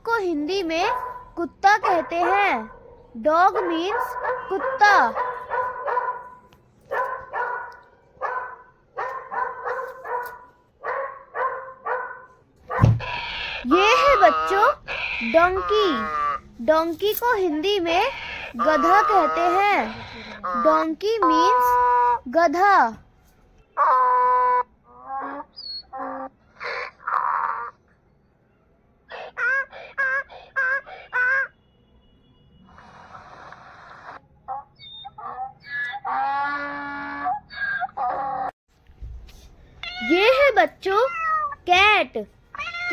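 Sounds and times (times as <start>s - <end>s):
dog barking: 0.8s - 16.4s
donkey braying: 12.7s - 22.7s, 23.8s - 27.9s, 29.1s - 31.6s, 32.7s - 38.5s
donkey rasping breath: 13.0s - 16.6s, 17.8s - 20.6s, 29.1s - 31.3s, 32.6s - 34.2s.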